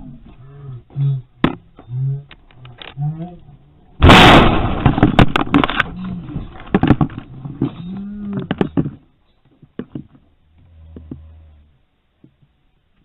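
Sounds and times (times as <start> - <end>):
low hum: 0.0 - 9.2
sharp knocks and clattering: 4.0 - 10.2.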